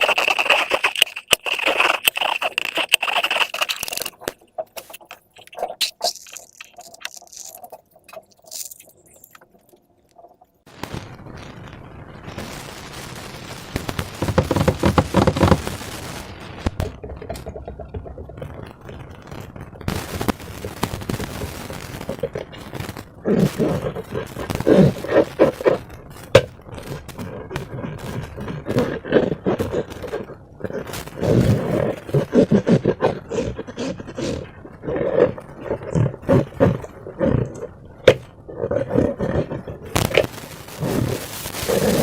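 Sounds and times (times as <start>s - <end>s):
high squeaky tone with crackling: 0.0s - 11.0s, 39.9s - 42.0s.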